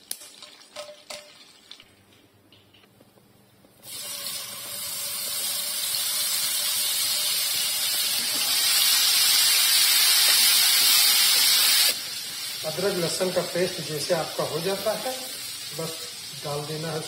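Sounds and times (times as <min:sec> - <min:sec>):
paste sizzling in hot oil: 0:03.8 - 0:17.0.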